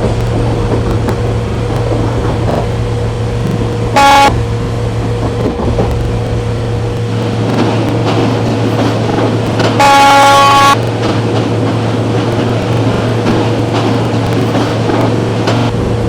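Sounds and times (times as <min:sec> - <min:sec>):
low running rumble: 0:00.0 - 0:16.0
vehicle horn blast: 0:03.9 - 0:04.4, 0:09.8 - 0:10.8.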